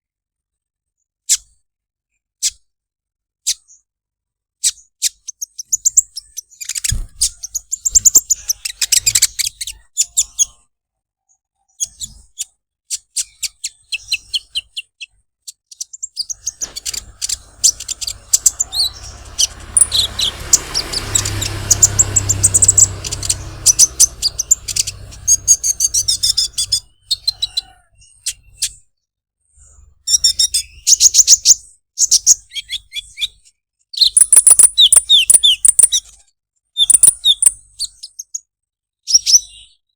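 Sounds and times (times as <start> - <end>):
bird chirping and ticking: 6.6 - 9.4, 15.8 - 27.3, 34.1 - 36.0, 36.8 - 37.6
low steady rumble: 16.5 - 26.8.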